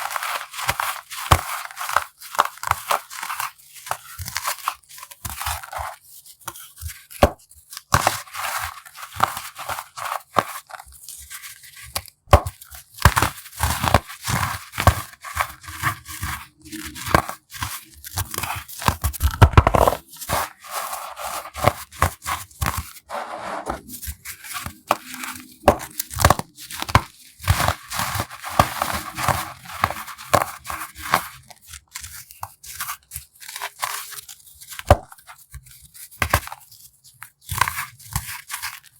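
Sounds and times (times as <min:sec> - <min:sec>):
baking soda crunching: 0:12.6 - 0:23.1, 0:23.8 - 0:34.0.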